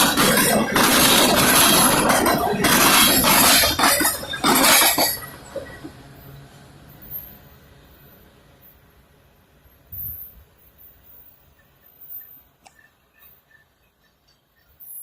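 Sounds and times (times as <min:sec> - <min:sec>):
train cars clanking on rails: 0:00.0 - 0:08.2.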